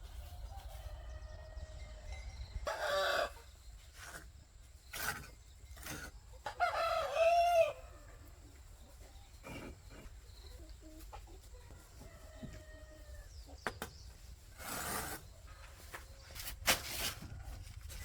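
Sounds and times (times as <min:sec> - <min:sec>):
chickens calling: 0:00.0 - 0:16.5
rooster crowing: 0:06.5 - 0:08.0.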